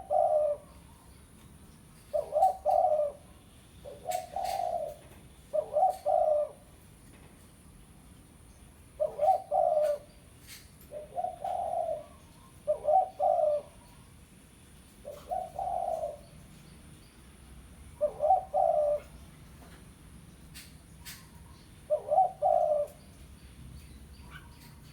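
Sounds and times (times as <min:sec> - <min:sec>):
dove cooing: 0:00.0 - 0:01.0, 0:02.0 - 0:06.8, 0:09.0 - 0:14.1, 0:15.0 - 0:16.4, 0:17.8 - 0:19.2, 0:21.0 - 0:23.2.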